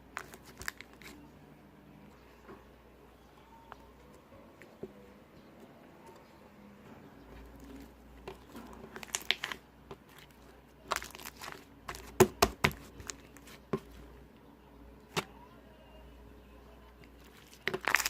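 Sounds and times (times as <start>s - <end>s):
slime popping and crackling: 8.2s - 13.4s, 17.3s - 18.0s
slime squished by hand: 17.5s - 18.0s.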